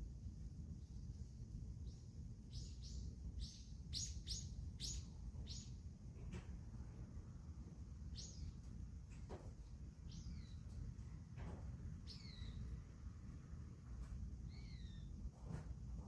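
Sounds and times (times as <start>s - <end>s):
faint low rumble: 0.0s - 16.0s
small bird chirping: 1.8s - 5.9s, 8.0s - 8.7s, 10.0s - 10.9s, 12.0s - 13.0s, 14.4s - 15.2s.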